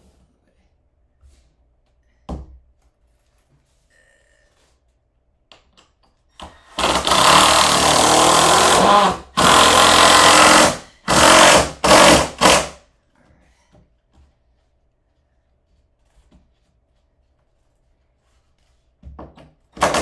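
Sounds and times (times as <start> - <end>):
power drill driving screws: 6.7 - 12.8, 19.8 - 20.0.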